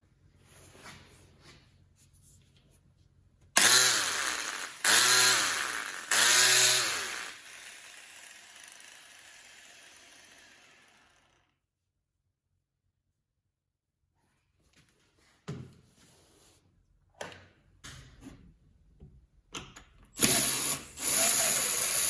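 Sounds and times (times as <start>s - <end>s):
angle grinder motor spinning: 3.6s - 11.4s, 20.2s - 22.0s.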